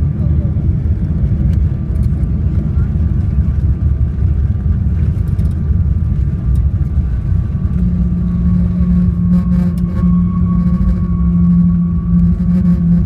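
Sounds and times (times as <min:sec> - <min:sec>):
deeper steady hum: 0:00.0 - 0:13.0
high engine tone: 0:00.0 - 0:13.0
jet landing rumble: 0:00.0 - 0:13.0.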